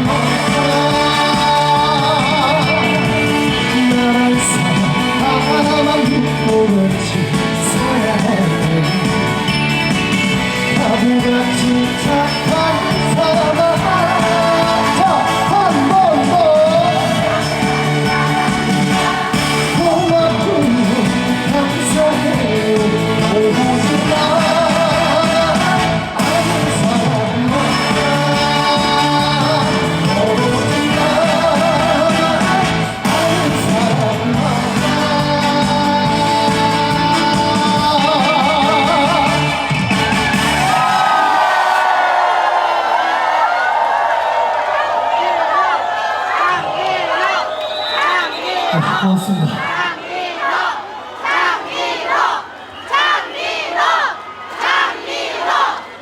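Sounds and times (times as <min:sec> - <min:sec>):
person singing with vibrato: 0:00.0 - 0:39.9
live band instrumental music: 0:00.0 - 0:41.1.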